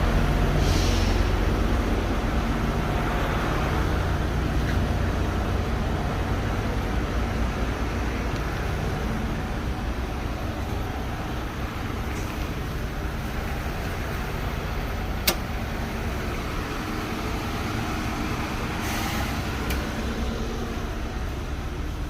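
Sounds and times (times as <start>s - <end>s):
low rumble of motor vehicle: 0.0s - 22.0s.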